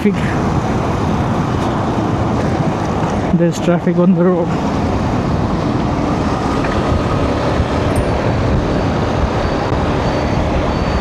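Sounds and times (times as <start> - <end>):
highway traffic: 0.0 - 11.0
motorcycle road noise: 0.0 - 11.0
wind on the microphone: 4.4 - 11.0.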